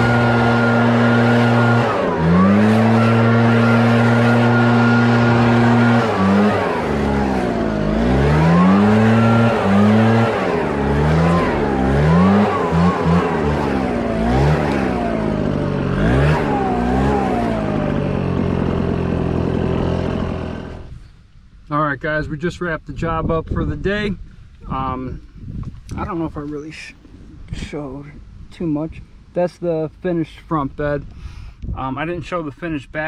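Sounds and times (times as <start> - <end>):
small gasoline engine revving: 0.0 - 21.0.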